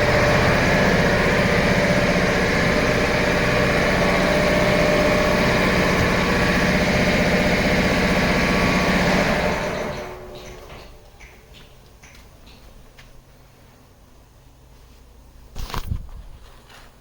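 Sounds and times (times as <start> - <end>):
diesel engine idling: 0.0 - 11.7.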